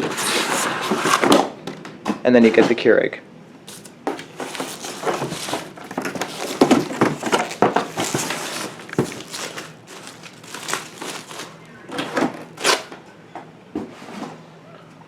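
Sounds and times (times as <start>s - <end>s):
packaging crinkling and rustling: 0.0s - 1.5s, 3.7s - 12.9s.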